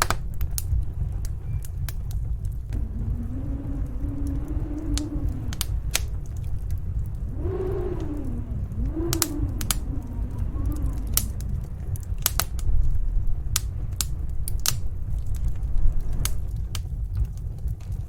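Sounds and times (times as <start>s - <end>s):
faint wind howl: 0.0s - 18.0s
low rumble of storm wind: 0.0s - 18.0s
wood fire crackling and popping: 0.0s - 18.0s.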